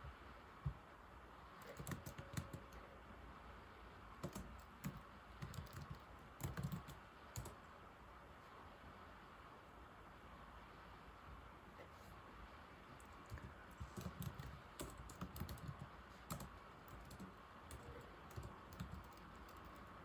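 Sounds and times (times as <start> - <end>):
laptop keyboard typing: 1.6 - 2.8, 4.2 - 7.6, 13.0 - 20.0.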